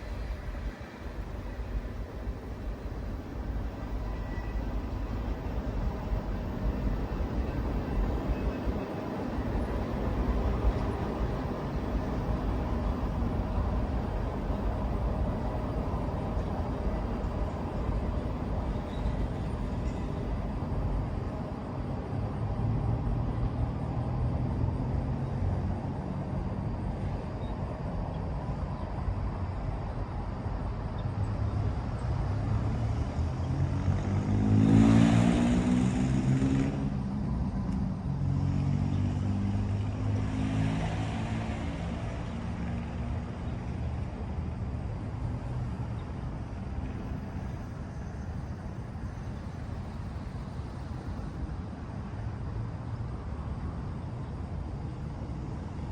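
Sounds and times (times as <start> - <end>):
vehicle engines rumbling: 0.0 - 55.9
vehicle passing close by: 32.8 - 37.2.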